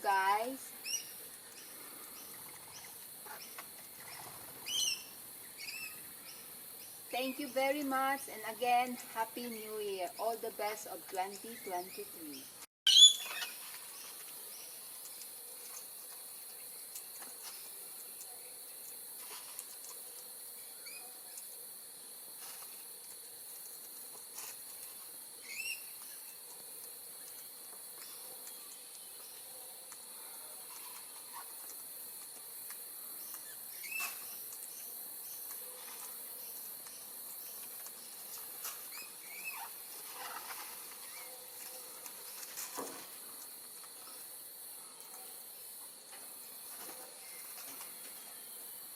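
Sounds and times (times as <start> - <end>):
insects droning: 0.0 - 48.9
bird chirps: 11.4 - 13.6.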